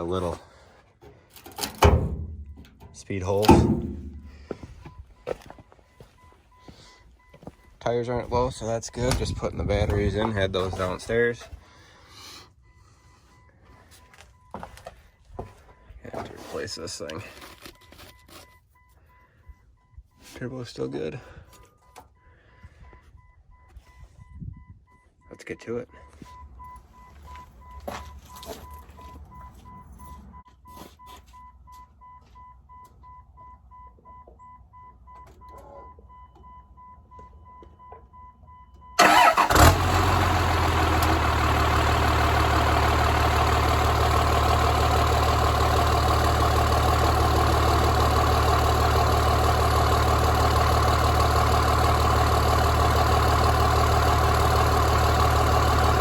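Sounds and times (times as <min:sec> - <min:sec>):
diesel engine starting and idling: 0:00.0 - 0:13.7, 0:38.5 - 0:56.0.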